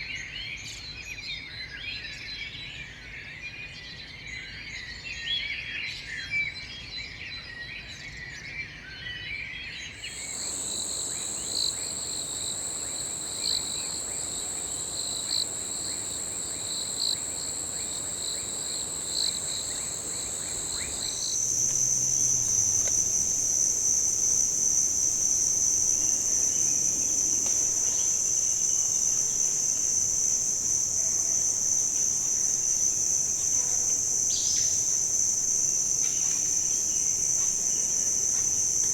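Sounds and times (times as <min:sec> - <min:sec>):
insect drone: 0:10.0 - 0:38.9
loud insect whine: 0:10.0 - 0:38.9
small birds chirping: 0:10.0 - 0:38.9.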